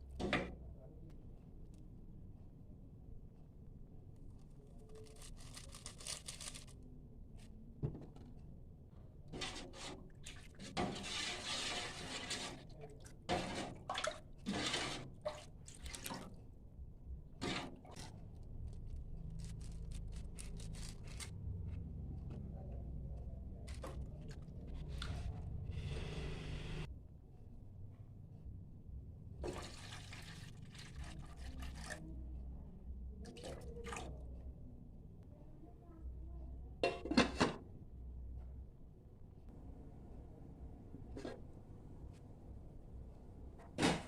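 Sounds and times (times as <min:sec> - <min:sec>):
water splashing and pouring: 0:09.4 - 0:16.4, 0:29.4 - 0:32.0.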